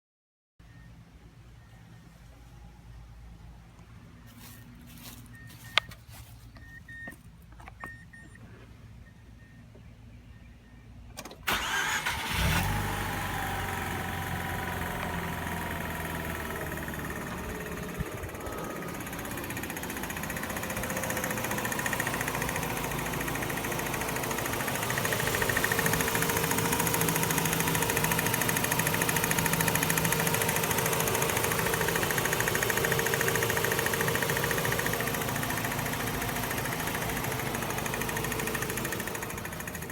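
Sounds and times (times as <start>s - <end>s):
constant engine clicking: 3.6s - 39.9s
rotary engine starting and idling: 11.2s - 39.9s.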